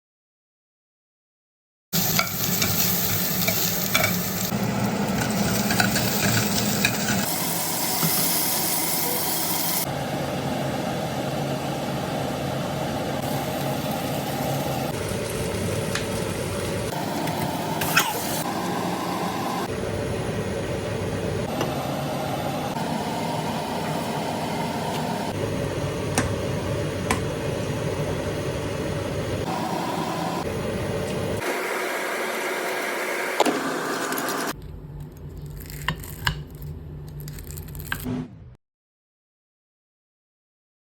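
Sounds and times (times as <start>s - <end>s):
food sizzling in a hot pan: 2.0s - 9.9s, 13.2s - 16.9s.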